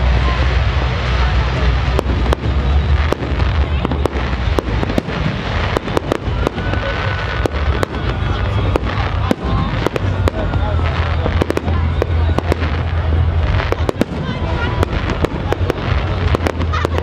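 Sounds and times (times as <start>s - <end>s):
fireworks bursting and crackling: 0.0s - 17.0s
low rumble: 0.0s - 17.0s.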